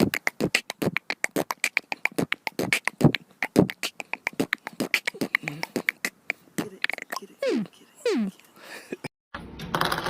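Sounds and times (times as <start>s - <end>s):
parrot beatboxing clicks and pops: 0.0s - 7.6s.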